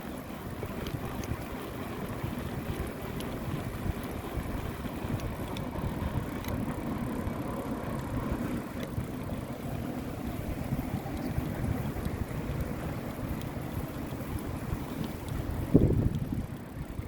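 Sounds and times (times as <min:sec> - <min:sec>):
bicycle road noise: 0:00.0 - 0:17.0
faint clicks: 0:00.6 - 0:01.4, 0:02.8 - 0:04.2, 0:05.0 - 0:06.8, 0:10.9 - 0:17.0
wind on microphone: 0:08.2 - 0:17.0.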